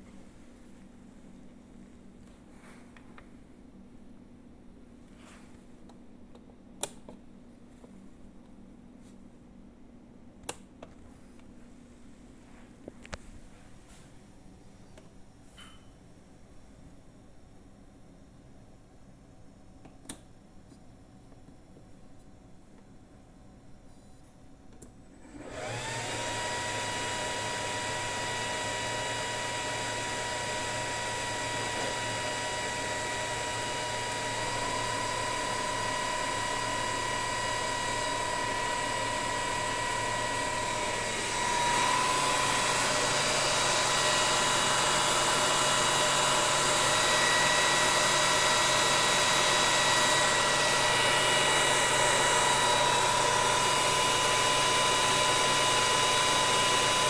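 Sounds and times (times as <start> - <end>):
electric motor whine: 25.2 - 57.0.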